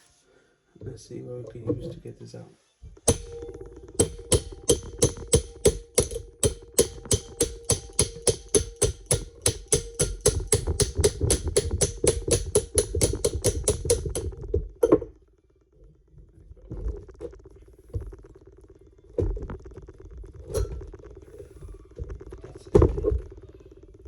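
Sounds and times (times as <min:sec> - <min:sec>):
hammer striking steel: 0:03.1 - 0:15.1.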